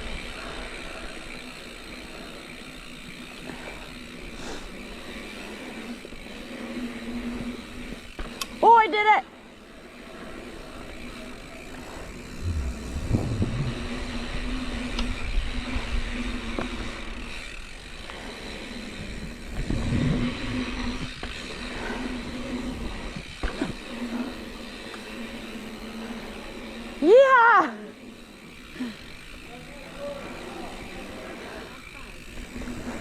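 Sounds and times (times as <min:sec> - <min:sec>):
bike knocking and rattling: 0:00.0 - 0:33.0
bike tyres on dirt trail: 0:00.0 - 0:33.0
wind gusts on microphone: 0:12.3 - 0:15.4.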